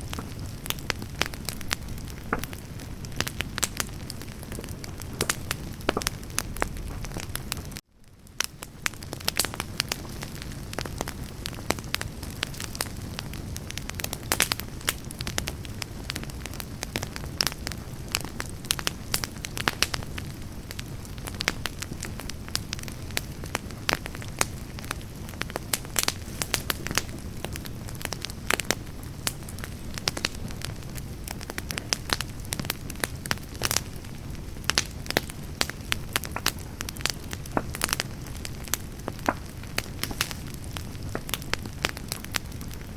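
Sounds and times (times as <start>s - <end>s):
logs crackling and popping: 0.0s - 42.9s
flame rushing: 21.3s - 42.9s.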